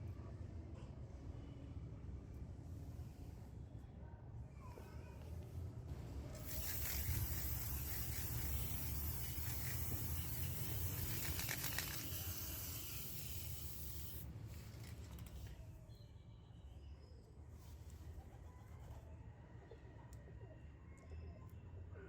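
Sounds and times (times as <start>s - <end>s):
steady scraping hiss: 6.4s - 15.5s.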